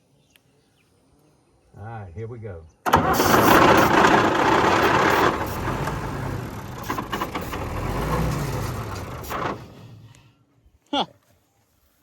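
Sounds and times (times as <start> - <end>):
diesel engine cranking: 2.8 - 10.3.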